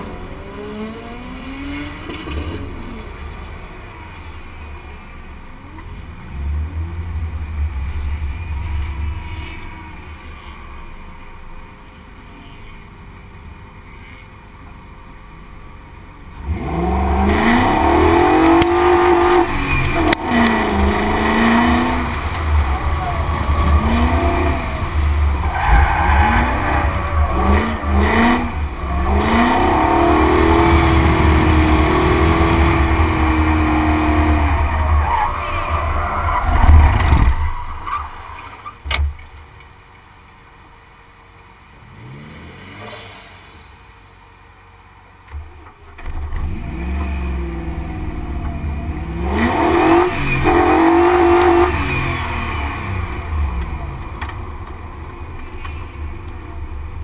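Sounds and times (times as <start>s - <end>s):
car engine revving: 0.0s - 3.8s, 16.3s - 38.6s, 46.0s - 57.0s
wind rumble outside car: 16.4s - 39.7s.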